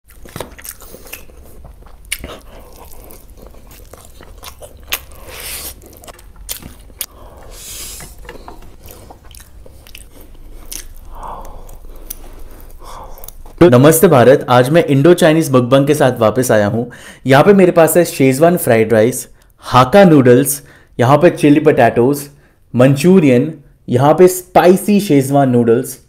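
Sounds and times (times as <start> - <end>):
chewing crunchy fried food: 0.1 - 13.6.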